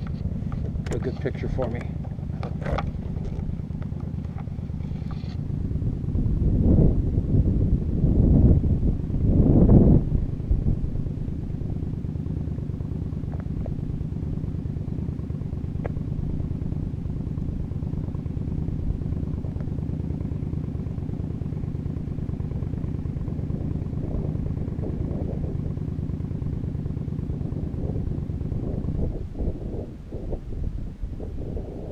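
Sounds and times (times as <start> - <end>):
motorcycle engine idling: 0.0 - 31.9
faint ticks: 15.8 - 16.0.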